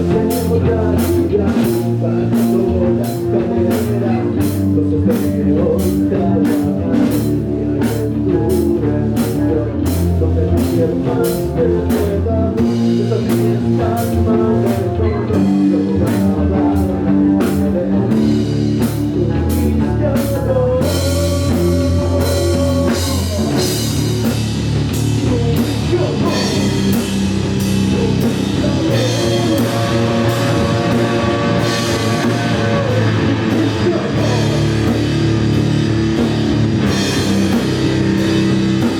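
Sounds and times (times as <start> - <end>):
long bending guitar notes: 0.0 - 38.9
metal band playing live: 0.0 - 38.9
drum and cymbal hits: 11.9 - 38.9.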